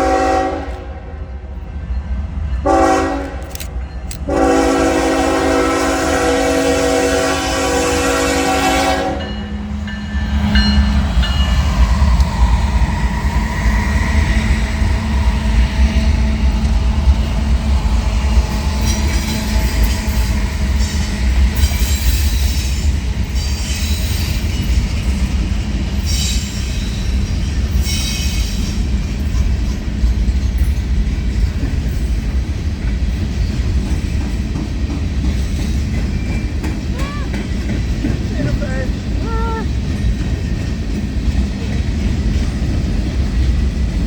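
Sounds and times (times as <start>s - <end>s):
train horn chord: 0.0s - 1.2s, 2.6s - 3.5s, 4.2s - 9.8s
train rolling past: 0.0s - 44.0s.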